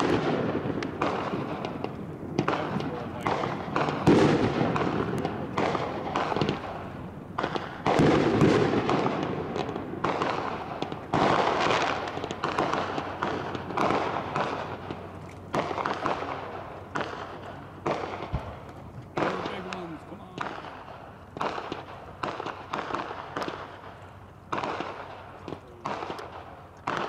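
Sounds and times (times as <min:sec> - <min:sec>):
fireworks bursting with echo: 0:00.0 - 0:27.0.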